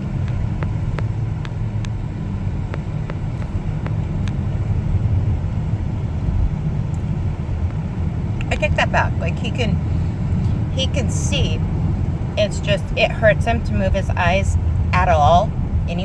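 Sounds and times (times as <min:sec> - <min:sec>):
light evenly spaced ticks: 0:00.0 - 0:08.8
car cabin road and engine rumble: 0:00.0 - 0:16.0.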